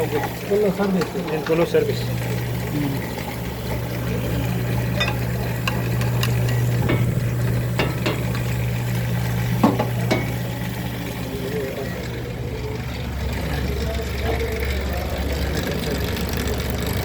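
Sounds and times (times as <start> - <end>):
flour machine humming: 0.0 - 17.0
sharp clicks and knocks: 4.9 - 8.6, 9.6 - 10.5.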